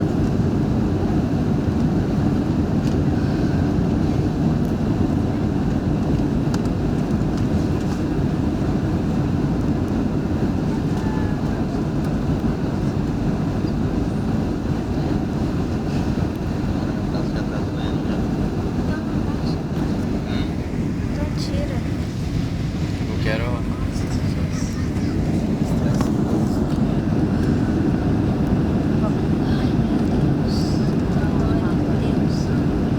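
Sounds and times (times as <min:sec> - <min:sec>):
airliner engines roaring: 0:00.0 - 0:32.9
rushing air: 0:18.2 - 0:29.5.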